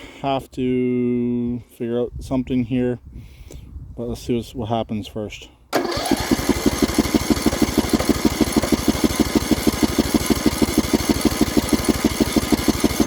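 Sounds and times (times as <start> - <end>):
mower engine cranking: 5.7 - 13.0.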